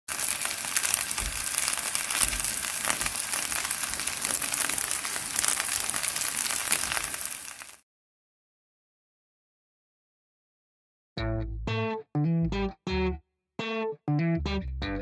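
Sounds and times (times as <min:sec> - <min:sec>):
cutlets sizzling in oil: 0:00.1 - 0:07.8.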